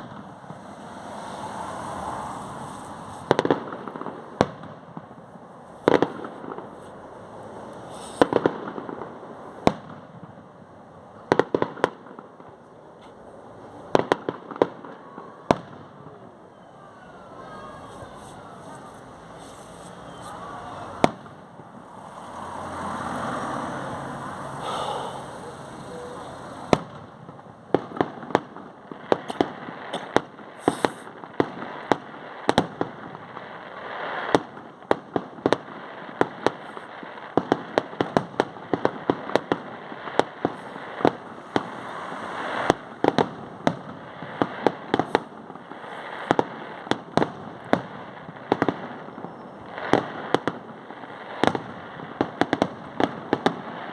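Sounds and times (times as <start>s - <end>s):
firework rushing noise: 0.0s - 10.6s, 16.8s - 53.9s
firework bangs and cracks: 0.0s - 53.9s.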